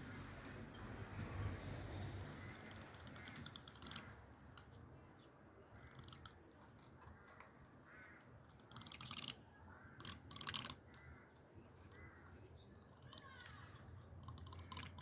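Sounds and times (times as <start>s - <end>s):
small clicks and rattles: 2.5s - 4.8s, 5.9s - 11.4s, 12.9s - 15.0s.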